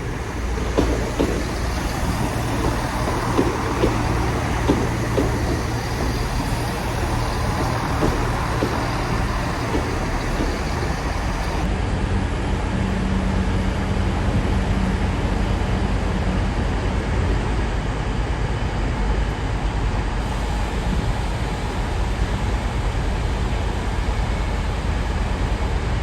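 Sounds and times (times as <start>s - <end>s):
wheels clicking on track: 0.0s - 11.8s, 12.8s - 26.0s
diesel train engine drone: 0.0s - 26.0s
steady hum: 17.6s - 26.0s.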